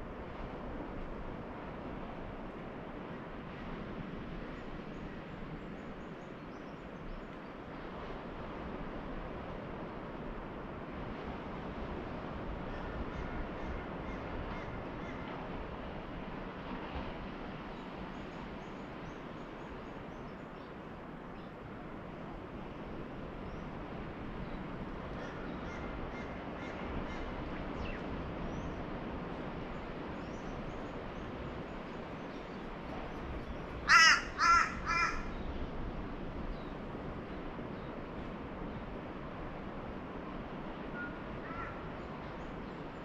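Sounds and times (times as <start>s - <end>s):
steady background wash: 0.0s - 43.0s
loud bird calls: 33.5s - 35.4s.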